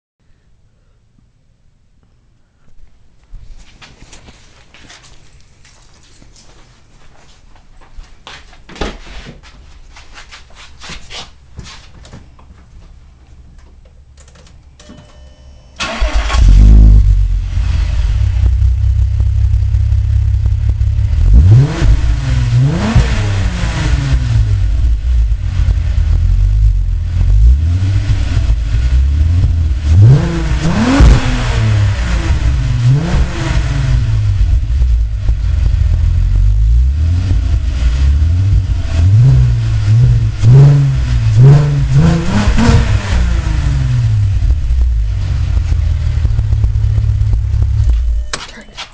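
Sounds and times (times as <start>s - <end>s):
car engine starting: 15.7s - 48.9s
car engine idling and revving: 15.8s - 48.9s.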